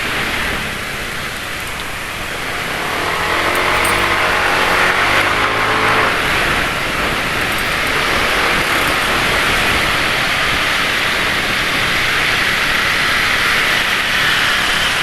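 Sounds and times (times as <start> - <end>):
low engine hum: 0.0 - 15.0
motorcycle engines running: 0.0 - 15.0
road traffic: 0.0 - 15.0
steady rushing noise: 0.0 - 15.0.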